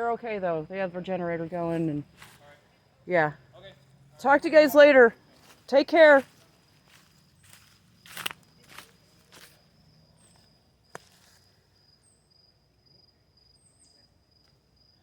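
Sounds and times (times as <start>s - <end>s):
faint footsteps: 1.5s - 2.7s, 5.2s - 11.6s
insect pulsing trill: 6.3s - 15.0s.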